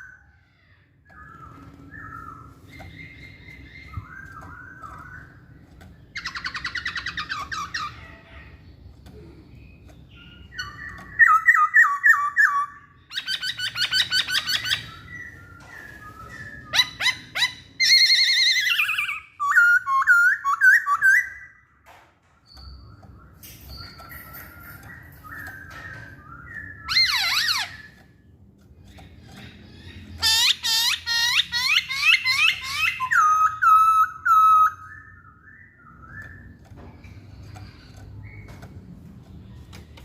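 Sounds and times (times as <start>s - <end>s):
bird singing whistled phrases: 1.1s - 5.3s.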